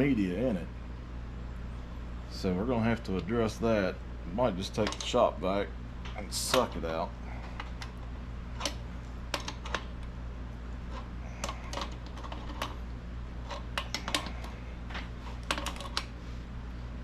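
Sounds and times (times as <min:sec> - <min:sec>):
steady low hum: 0:00.0 - 0:17.0
tools and metal parts clicking: 0:04.7 - 0:05.2, 0:10.9 - 0:12.8, 0:13.4 - 0:16.1.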